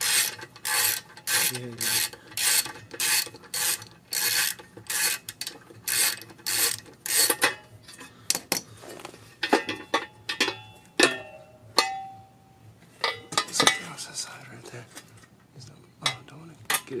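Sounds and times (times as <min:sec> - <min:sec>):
ratchet pawl clicking: 0:00.0 - 0:07.4.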